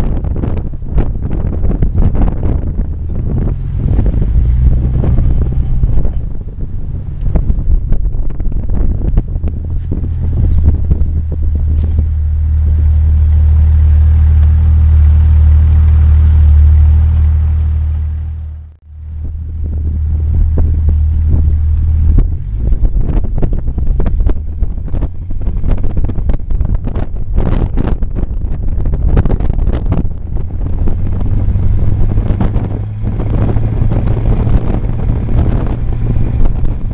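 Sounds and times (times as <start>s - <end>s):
wind buffeting microphone: 0.0s - 16.5s, 19.0s - 36.9s
car engine and road drone: 0.0s - 36.9s.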